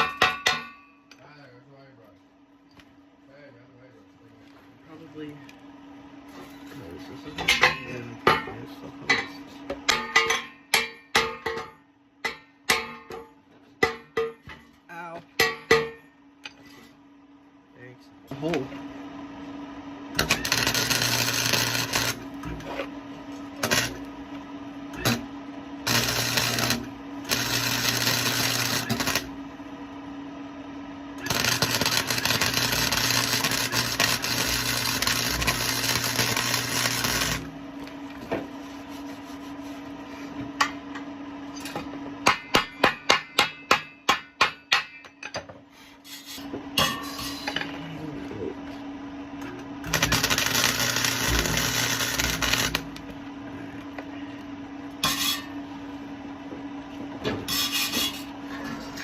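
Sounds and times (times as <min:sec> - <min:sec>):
sharp metal knocks: 0:00.0 - 0:00.9, 0:15.4 - 0:16.1, 0:42.2 - 0:45.2
steady welder hum: 0:00.0 - 0:59.0
welding arc crackling: 0:20.2 - 0:22.7, 0:23.5 - 0:24.1, 0:25.0 - 0:29.4, 0:31.2 - 0:37.6, 0:49.8 - 0:53.1.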